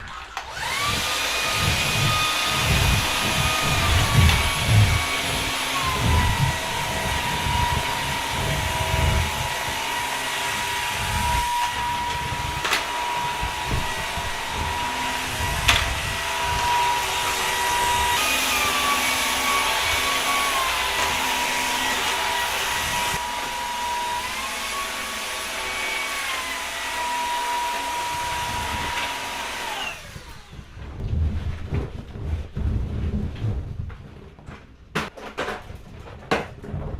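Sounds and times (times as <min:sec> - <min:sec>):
vacuum cleaner running: 0:00.0 - 0:30.8
low thumps and bumps: 0:00.7 - 0:18.2, 0:30.2 - 0:35.1.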